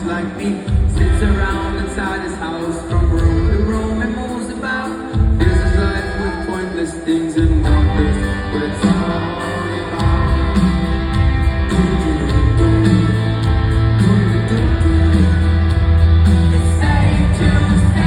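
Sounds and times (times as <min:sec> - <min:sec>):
electric guitar: 0:00.0 - 0:18.0
live rock band playing: 0:00.0 - 0:18.0
sustained bass line: 0:07.5 - 0:18.0.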